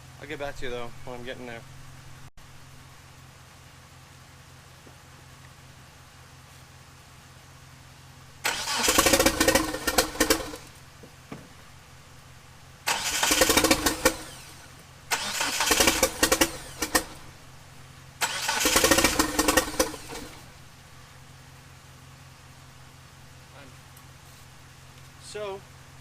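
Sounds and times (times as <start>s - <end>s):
sharp engine cracks: 8.4s - 10.8s, 12.9s - 17.4s, 18.2s - 20.6s
starter cranking engine: 8.4s - 10.8s, 12.8s - 17.3s, 18.2s - 20.6s.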